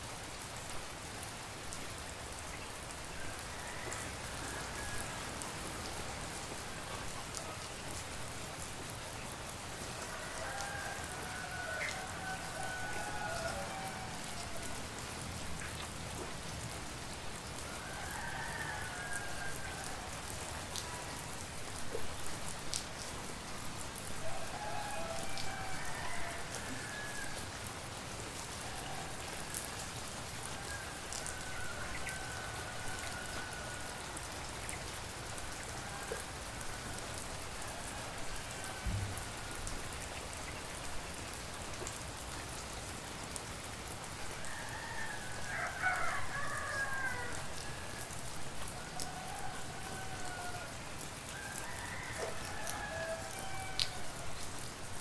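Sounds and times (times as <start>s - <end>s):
steady rain falling: 0.0s - 55.0s
distant rooster crowing: 3.2s - 5.5s, 10.0s - 14.8s, 17.7s - 20.3s, 24.2s - 27.5s, 30.5s - 34.1s, 35.7s - 39.8s, 44.4s - 54.4s
drops pattering and dripping: 38.8s - 39.6s.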